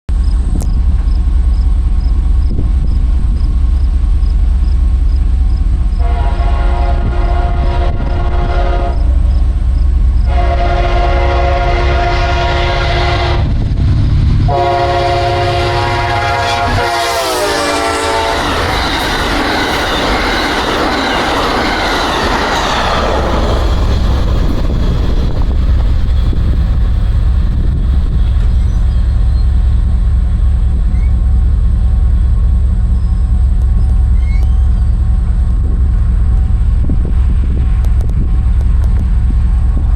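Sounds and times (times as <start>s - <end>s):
heavy low rumble: 0.1s - 39.9s
train rushing by: 0.1s - 39.9s
locomotive air horn blasts: 6.0s - 9.5s, 10.2s - 13.6s, 14.5s - 19.1s.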